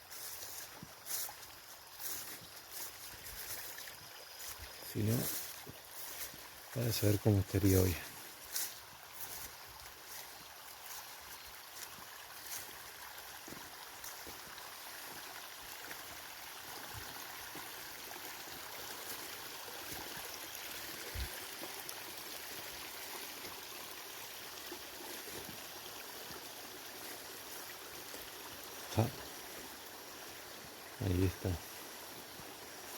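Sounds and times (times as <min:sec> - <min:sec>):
stream trickling: 0:00.0 - 0:32.9.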